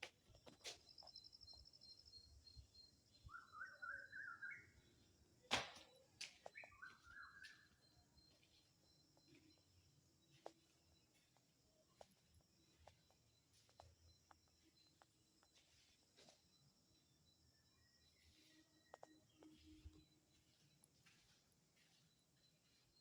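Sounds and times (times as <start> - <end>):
birds chirping: 0.9 - 5.1, 5.9 - 9.7
bird trill: 1.2 - 5.0, 5.9 - 8.3.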